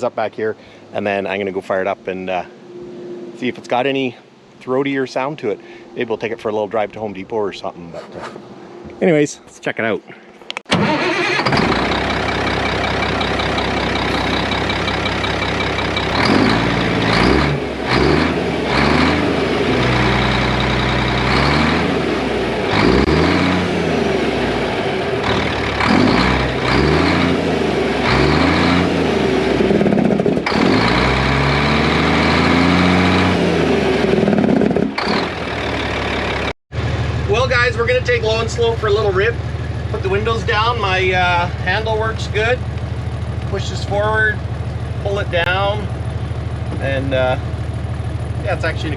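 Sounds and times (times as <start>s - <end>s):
diesel truck engine revving: 10.7s - 48.9s.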